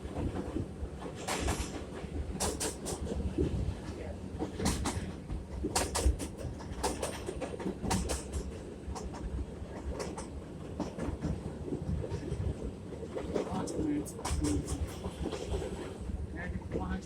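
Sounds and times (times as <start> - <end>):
subway train rumble: 0.0 - 17.0
wheels clacking over rails: 0.2 - 3.2, 4.4 - 15.9.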